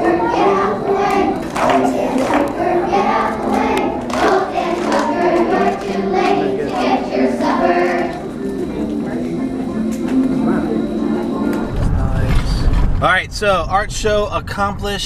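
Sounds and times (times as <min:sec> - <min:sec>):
children's choir singing: 0:00.0 - 0:11.7.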